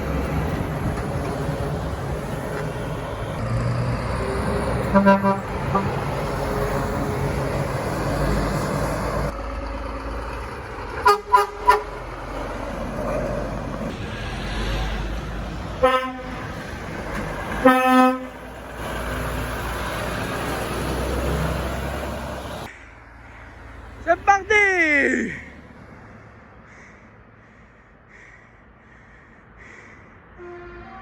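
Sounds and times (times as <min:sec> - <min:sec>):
road traffic: 0:00.0 - 0:31.0
truck horns: 0:02.8 - 0:07.3, 0:11.0 - 0:12.2, 0:15.7 - 0:16.7, 0:17.4 - 0:19.2, 0:30.3 - 0:31.0.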